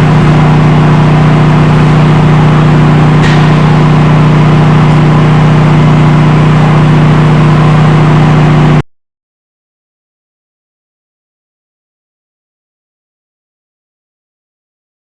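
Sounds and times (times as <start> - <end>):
plasma cutter humming: 0.0 - 8.8.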